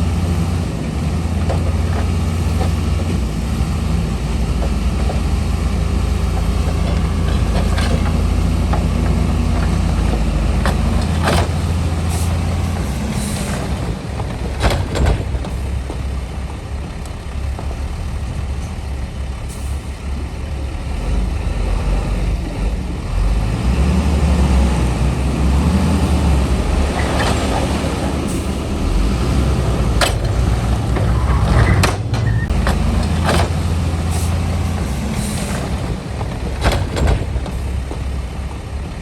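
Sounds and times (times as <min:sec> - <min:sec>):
heavy diesel machinery engine: 0:00.0 - 0:39.0
metallic clanks and knocks: 0:06.3 - 0:16.1, 0:29.8 - 0:39.0.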